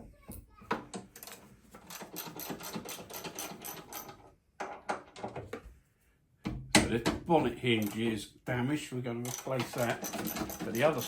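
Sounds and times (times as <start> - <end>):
hand tool clicking rapidly: 9.3 - 11.0.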